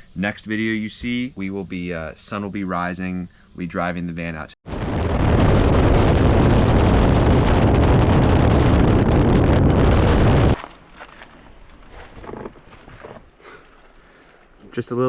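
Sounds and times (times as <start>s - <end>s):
wind buffeting microphone: 4.7s - 10.6s.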